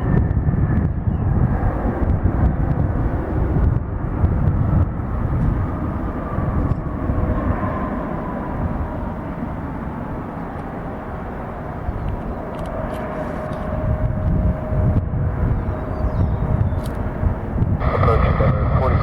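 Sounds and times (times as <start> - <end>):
jet engine whine: 0.0 - 19.0
jet engines rumbling: 0.0 - 19.0.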